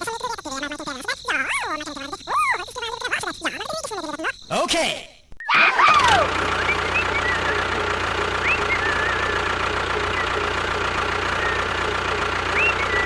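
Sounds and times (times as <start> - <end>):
engine running with low hum: 5.8 - 13.0.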